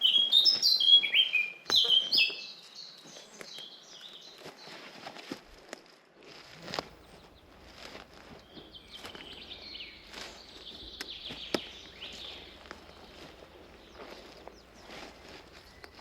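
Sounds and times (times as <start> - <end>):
songbirds chirping: 0.0 - 5.1, 6.5 - 16.0
footsteps crunching on forest path: 0.0 - 16.0
twig snapping: 9.0 - 16.0.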